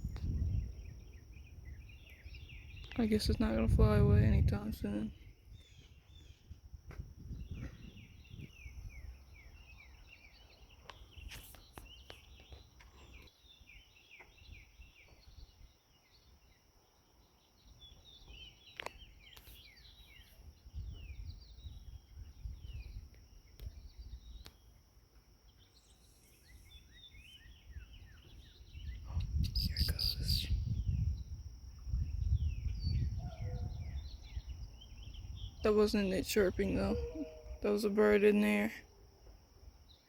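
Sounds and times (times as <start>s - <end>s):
small songbirds chirping: 0.0s - 40.0s.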